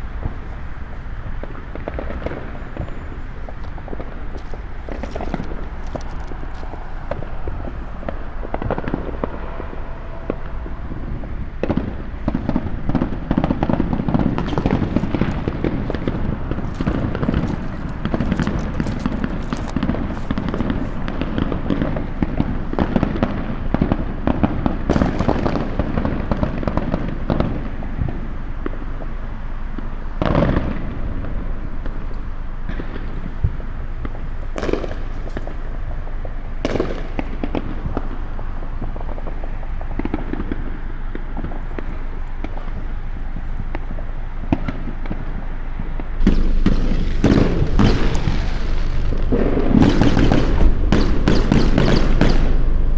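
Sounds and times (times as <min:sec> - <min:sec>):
fireworks crackling and banging: 0:00.0 - 0:29.0, 0:32.7 - 0:52.9
loud single firework burst: 0:46.2 - 0:52.9.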